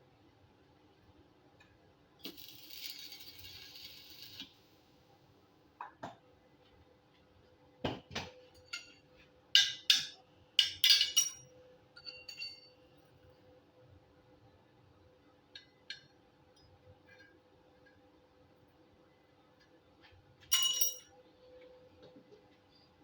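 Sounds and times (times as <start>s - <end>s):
metal tools clinking: 20.5s - 21.1s.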